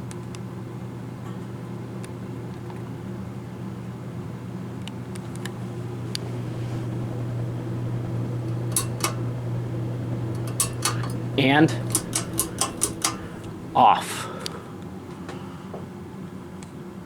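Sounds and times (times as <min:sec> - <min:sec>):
ceiling fan motor hum: 0:04.9 - 0:14.7
faint clicks: 0:05.1 - 0:13.8
air rushing from fan blades: 0:05.6 - 0:14.4.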